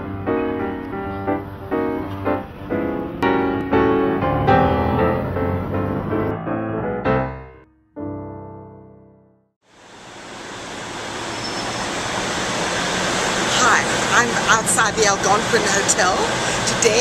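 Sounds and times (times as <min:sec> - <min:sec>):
piano music: 0:00.0 - 0:09.5.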